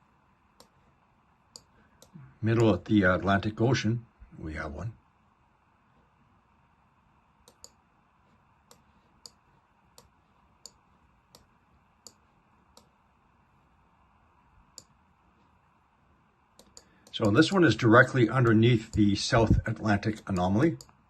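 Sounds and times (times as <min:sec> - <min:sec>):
light sharp computer clicks: 0:07.4 - 0:07.8, 0:16.6 - 0:17.5.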